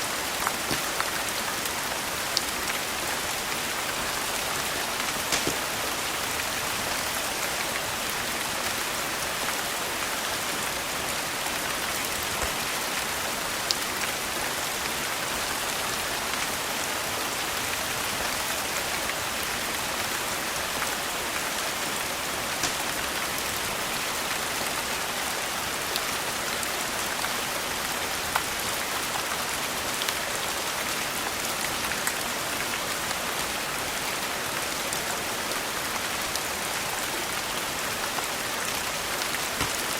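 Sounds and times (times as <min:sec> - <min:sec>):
rain falling: 0:00.0 - 0:39.9
sharp clicks or pops: 0:05.3 - 0:05.7, 0:22.6 - 0:22.9.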